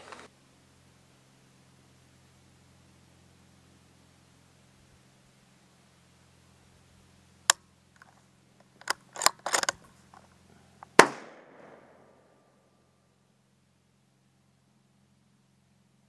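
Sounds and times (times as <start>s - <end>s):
rifle action metallic clicks: 8.8s - 9.9s.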